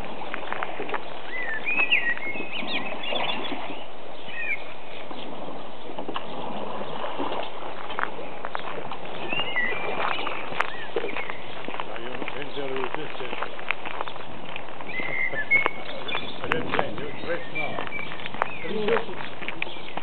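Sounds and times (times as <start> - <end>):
small bird chirping: 0.4 - 5.3, 8.5 - 11.8, 12.4 - 20.0.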